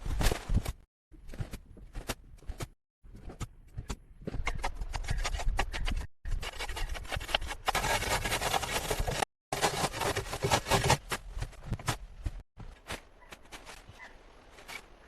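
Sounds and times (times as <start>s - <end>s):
hand tool scraping and rasping: 4.4s - 11.1s.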